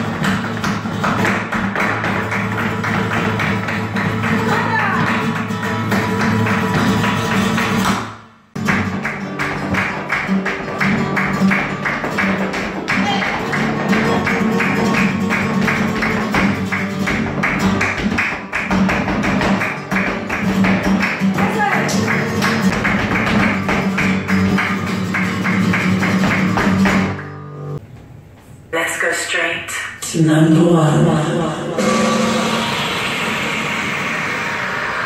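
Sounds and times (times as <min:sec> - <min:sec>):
flamenco-style guitar music: 0:00.0 - 0:27.8.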